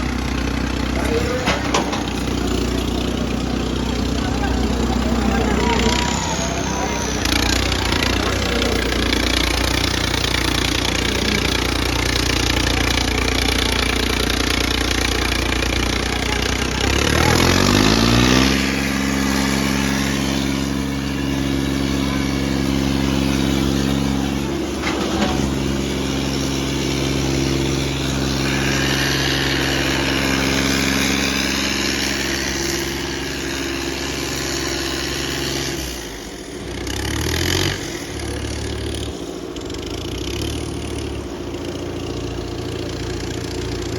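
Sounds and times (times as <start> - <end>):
diesel tractor engine revving: 0.0 - 43.9.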